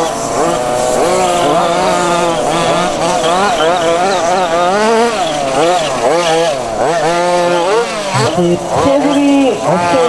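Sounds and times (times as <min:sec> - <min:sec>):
two-stroke model car engines racing: 0:00.0 - 0:10.0.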